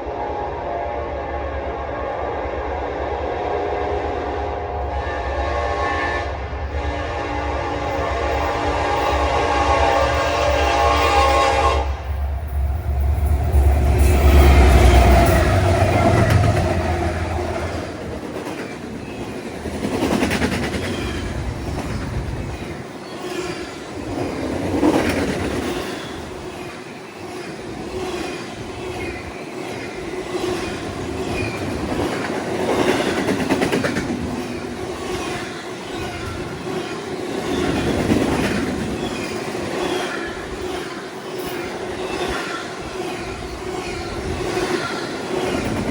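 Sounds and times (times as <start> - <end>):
locomotive rumble: 6.4 - 20.0
train wheels clacking on rails: 7.0 - 45.9.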